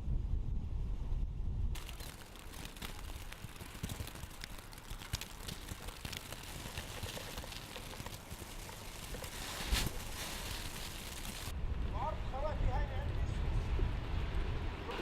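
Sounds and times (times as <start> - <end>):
hailstones striking the ground: 1.8 - 11.5.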